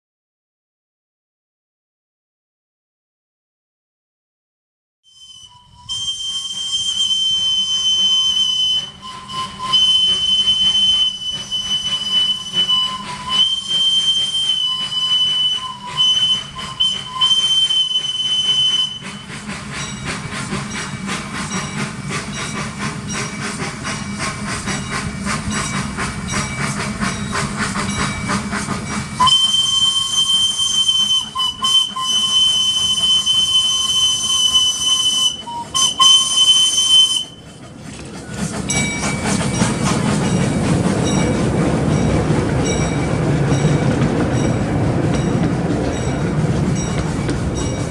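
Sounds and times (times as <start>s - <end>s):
steam whistle blasts: 5.0s - 19.5s, 26.8s - 37.6s
steam locomotive exhaust chuffing: 5.2s - 47.9s
steam hiss: 5.6s - 47.9s.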